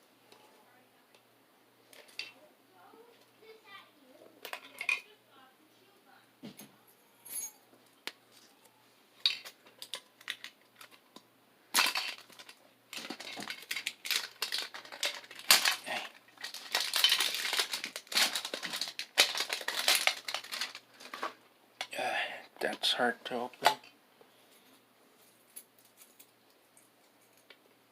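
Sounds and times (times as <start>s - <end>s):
wrapper crinkling and crackling: 9.2s - 11.0s, 11.7s - 21.4s
packaging clicks: 11.8s - 21.3s.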